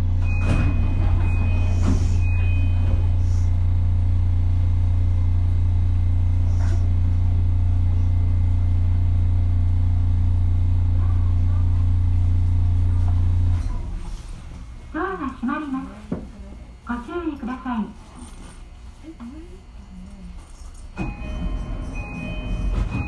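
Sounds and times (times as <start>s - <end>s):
faint passenger voices: 10.8s - 23.0s.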